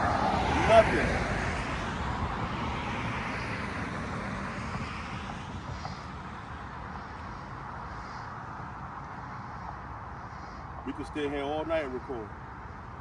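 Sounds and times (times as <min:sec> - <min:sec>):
road vehicle low rumble: 0:00.0 - 0:13.0.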